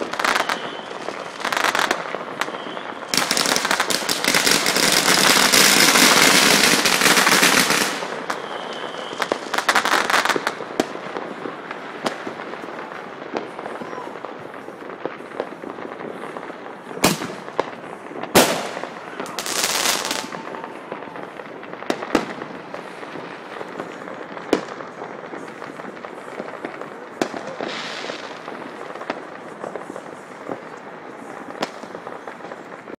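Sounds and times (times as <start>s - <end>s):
distant firecrackers popping: 0.0s - 33.0s
firework bangs: 0.0s - 33.0s.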